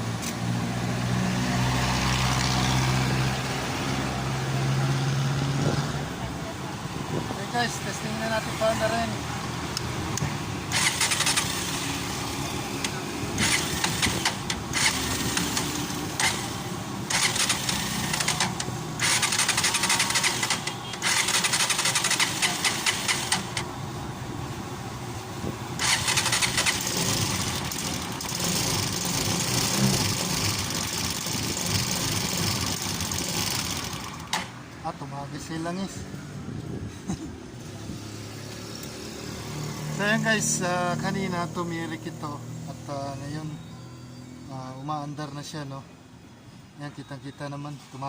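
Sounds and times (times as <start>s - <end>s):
motorcycle engine revving: 10.7s - 23.7s, 25.8s - 34.5s.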